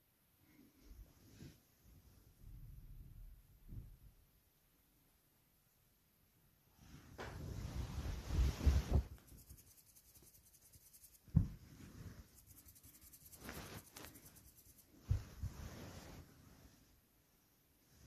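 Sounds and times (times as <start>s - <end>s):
rustling and rubbing: 6.8s - 18.0s
soft thumps: 11.2s - 11.8s.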